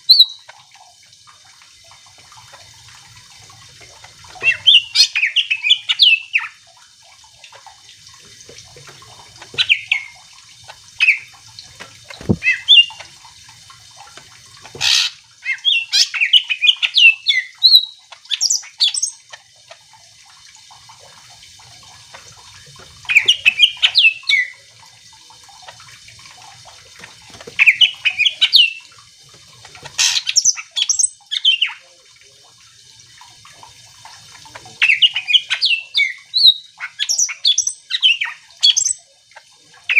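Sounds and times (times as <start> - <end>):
bird singing chirps and whistles: 0.1 - 0.4, 15.4 - 19.2, 34.8 - 39.0.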